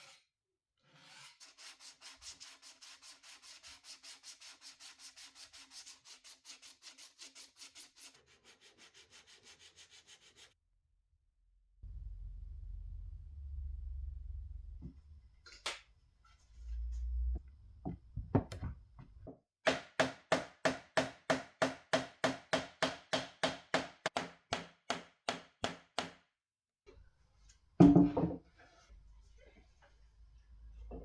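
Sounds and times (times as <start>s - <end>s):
hammer striking wood: 19.7s - 26.2s.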